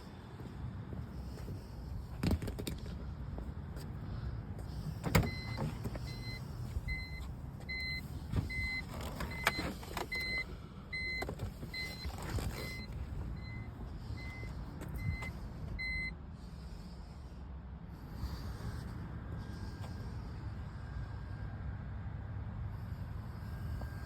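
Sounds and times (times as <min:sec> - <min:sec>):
short electronic beeps: 0:05.3 - 0:16.1.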